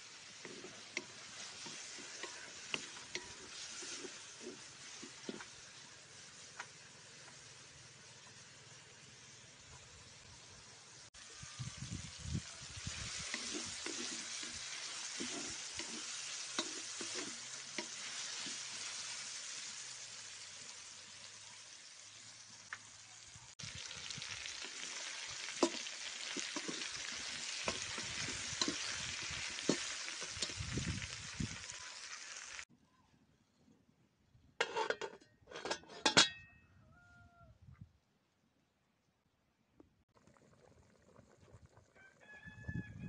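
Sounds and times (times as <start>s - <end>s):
food sizzling in a pot: 0.0s - 32.7s.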